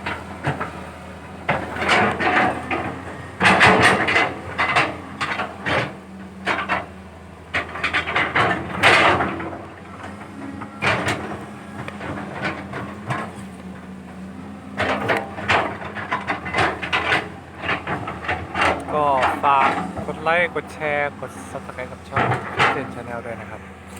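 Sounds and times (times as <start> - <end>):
clanks and knocks from digging: 0.0 - 23.9
excavator diesel engine running: 0.0 - 23.9.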